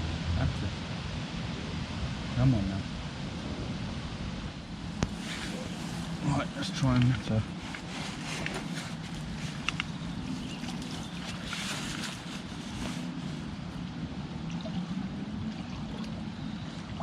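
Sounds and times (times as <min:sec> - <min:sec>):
wind on microphone: 0:00.0 - 0:17.0
fast-flowing river: 0:04.7 - 0:17.0.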